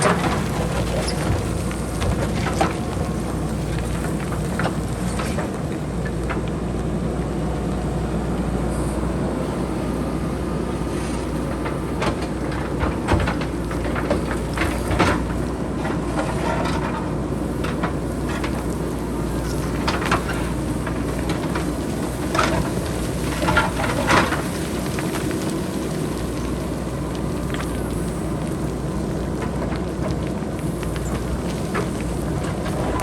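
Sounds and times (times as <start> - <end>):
backhoe diesel engine running: 0.0 - 33.0
rocks clattering down slope: 0.0 - 33.0.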